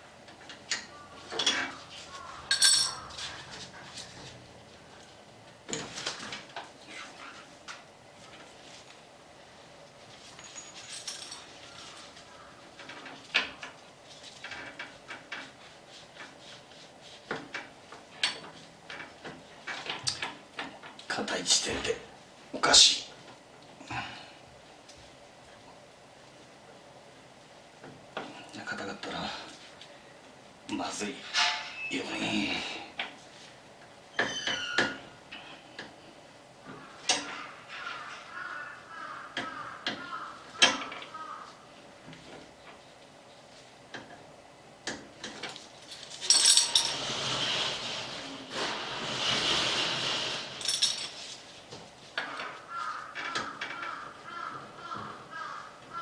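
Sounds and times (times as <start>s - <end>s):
metal tools clinking: 2.4s - 3.3s, 10.3s - 11.6s, 31.2s - 31.9s, 45.8s - 47.0s, 50.5s - 51.4s
metallic ringing: 2.5s - 3.0s
metal parts clicking and knocking: 2.5s - 3.2s, 45.3s - 47.0s, 50.6s - 51.2s.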